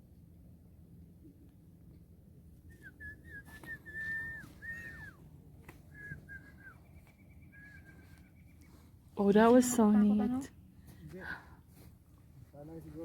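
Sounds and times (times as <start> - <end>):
clear whistled notes: 2.7 - 5.2, 5.9 - 8.0.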